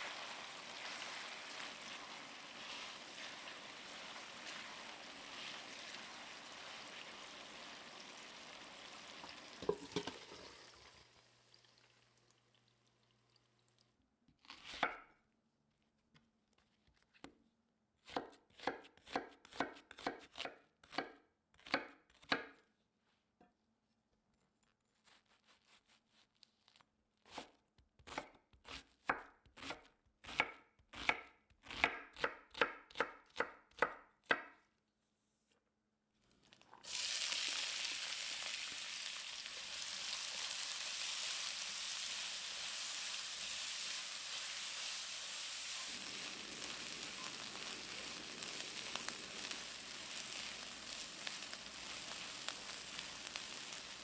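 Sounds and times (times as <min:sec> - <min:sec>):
food sizzling in hot oil: 0:00.0 - 0:12.3, 0:36.7 - 0:54.0
knife chopping on cutting board: 0:18.0 - 0:22.6, 0:27.3 - 0:34.5.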